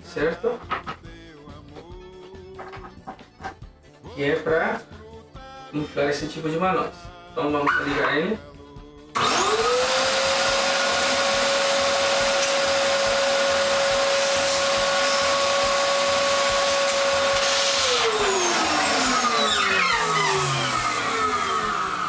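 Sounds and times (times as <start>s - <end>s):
balloon inflator motor whine: 9.2s - 22.0s.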